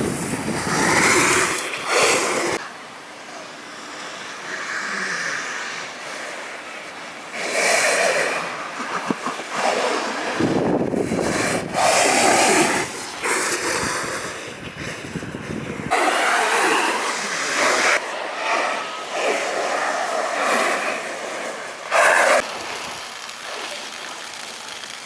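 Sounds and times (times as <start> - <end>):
snowboard edge swooshing: 0.0 - 2.6, 7.4 - 23.0
wind noise on microphone: 0.0 - 2.6, 10.2 - 16.0.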